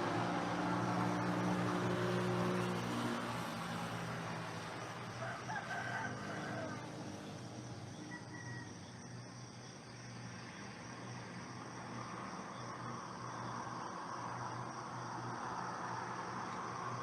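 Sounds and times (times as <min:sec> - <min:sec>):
rooster crowing: 0:05.1 - 0:07.0, 0:08.1 - 0:09.0.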